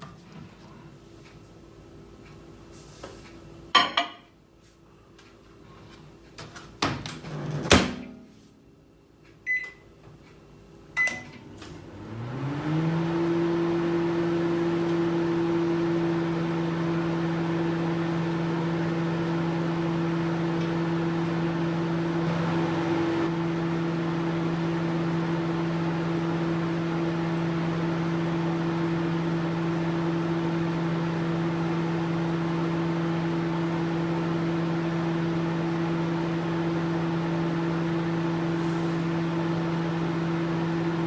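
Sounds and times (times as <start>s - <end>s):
microwave oven humming: 4.9s - 41.0s
short keypad beeps: 9.5s - 9.8s.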